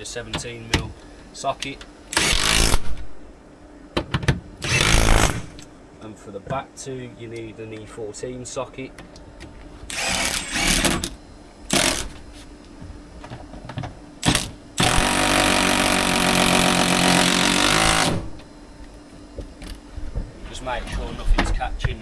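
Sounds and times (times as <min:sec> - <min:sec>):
power tool driving bolts: 0:02.1 - 0:03.0, 0:04.6 - 0:05.7, 0:09.9 - 0:12.2, 0:14.2 - 0:18.4.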